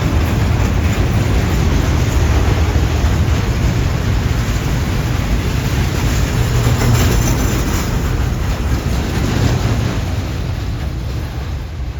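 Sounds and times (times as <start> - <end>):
train wheels rumbling on rails: 0.0 - 11.9.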